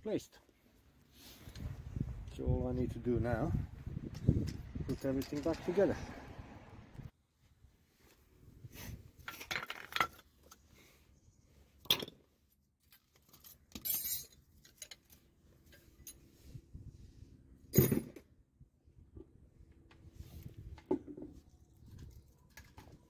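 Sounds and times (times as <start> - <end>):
metal tools clinking: 4.1 - 5.9, 12.8 - 16.3.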